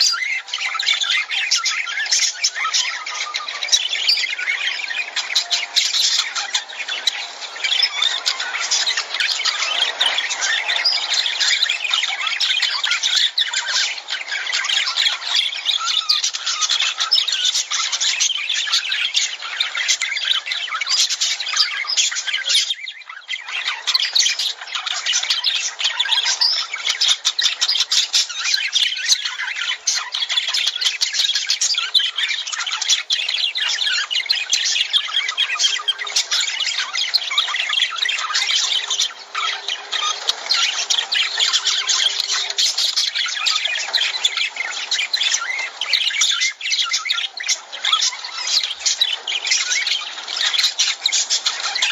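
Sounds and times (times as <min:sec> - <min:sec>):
lovebirds chattering and squawking: 0:00.0 - 0:51.9.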